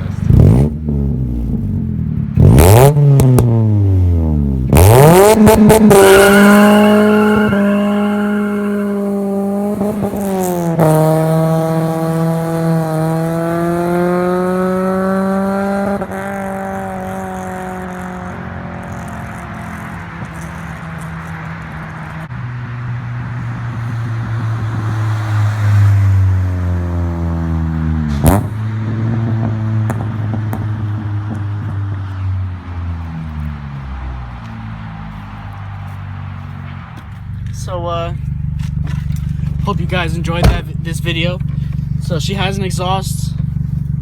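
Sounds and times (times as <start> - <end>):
car engine revving: 0.0 - 44.0
exhaust pops: 28.0 - 32.1, 36.8 - 44.0.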